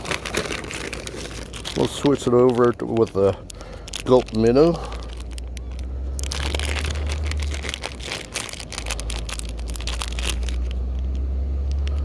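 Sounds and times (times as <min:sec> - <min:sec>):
plastic pouch crinkling: 0:00.0 - 0:12.0
low rumble: 0:03.0 - 0:12.0.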